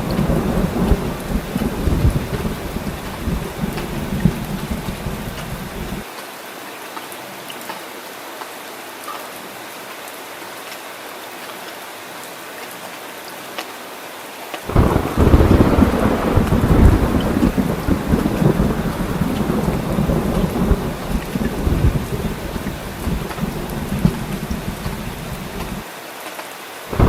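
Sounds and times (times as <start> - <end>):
raindrop ticks: 0.0 - 6.0, 14.5 - 25.8
thunder rumbling: 0.0 - 6.0, 14.7 - 25.8
heavy rain falling: 0.0 - 27.0.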